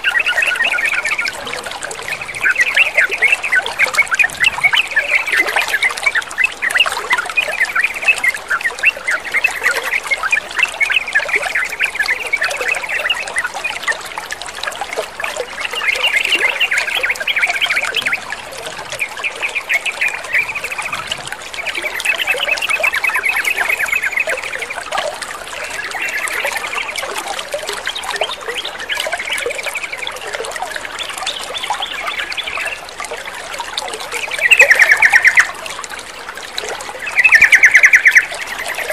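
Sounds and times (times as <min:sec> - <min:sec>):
birds chattering: 0:00.0 - 0:10.2, 0:15.7 - 0:24.5, 0:34.3 - 0:35.6, 0:37.0 - 0:38.9
trickle of running water: 0:00.0 - 0:38.9.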